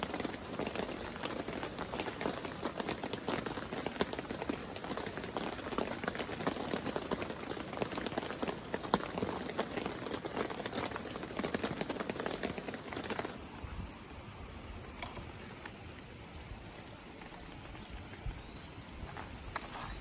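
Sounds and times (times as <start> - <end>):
heavy rain on a surface: 0.0 - 13.4.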